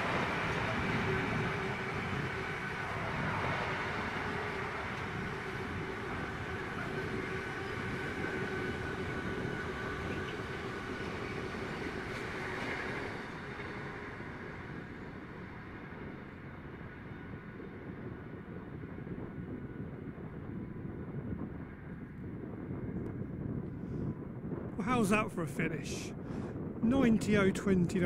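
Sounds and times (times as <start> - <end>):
train rumbling past: 0.0 - 20.8
faint held whine: 0.0 - 28.0.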